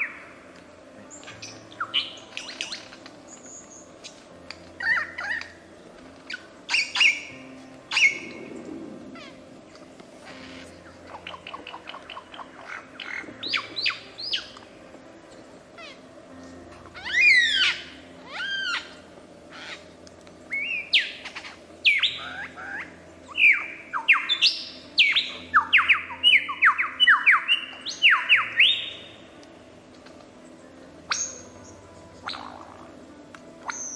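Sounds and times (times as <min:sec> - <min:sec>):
birds whistling calls: 0:01.1 - 0:04.2, 0:04.8 - 0:05.6, 0:06.2 - 0:14.6, 0:17.0 - 0:29.3, 0:31.1 - 0:33.0, 0:33.6 - 0:33.9.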